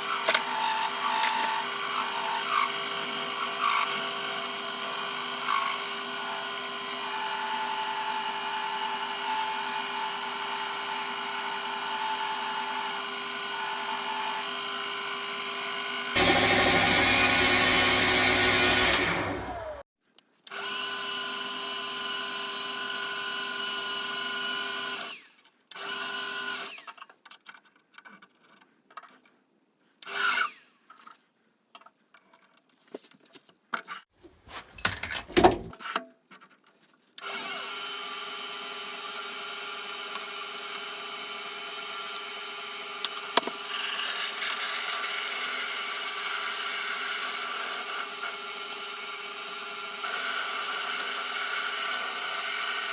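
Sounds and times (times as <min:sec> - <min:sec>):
metal lathe humming: 0:16.2 - 0:19.8
clicks and knocks: 0:34.3 - 0:35.8.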